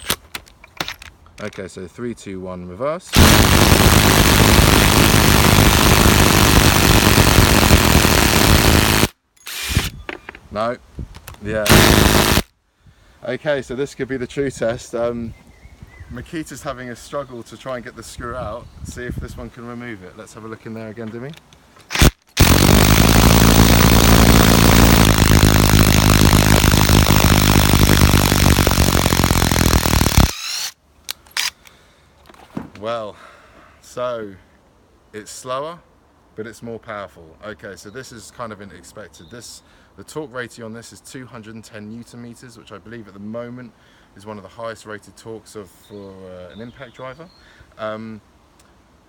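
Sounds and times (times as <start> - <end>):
drill bit whirring: 3.2 - 10.0, 11.7 - 12.5, 21.9 - 30.8.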